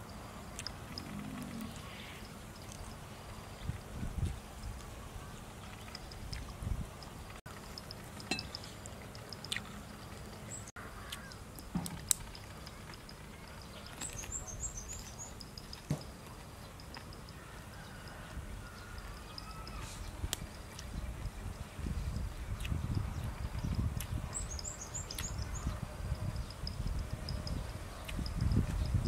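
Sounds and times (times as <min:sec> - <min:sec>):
crunching and wet chewing: 0:00.5 - 0:28.9
high bird chirps: 0:22.6 - 0:28.3.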